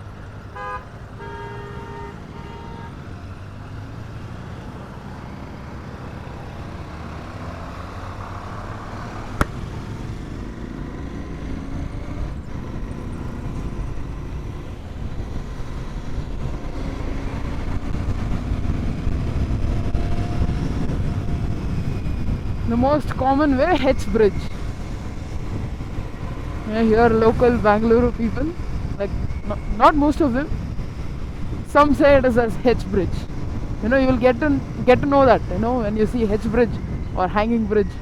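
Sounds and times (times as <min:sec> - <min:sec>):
vehicle horn toots: 0:00.6 - 0:03.1
motorcycle engine accelerating: 0:03.0 - 0:29.7.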